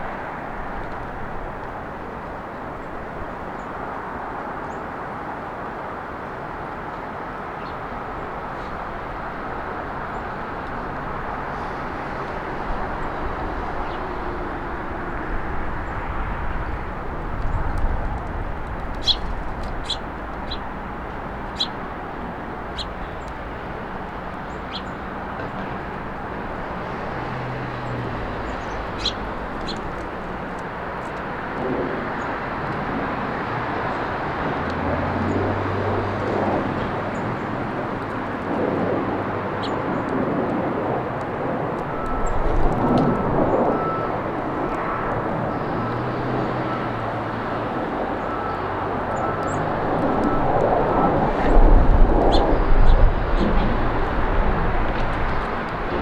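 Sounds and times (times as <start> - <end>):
road traffic hum: 0.0 - 56.0
vehicle engine: 8.7 - 39.7, 40.8 - 56.0
small birds chirping: 18.8 - 23.6, 24.2 - 25.6, 27.7 - 31.2.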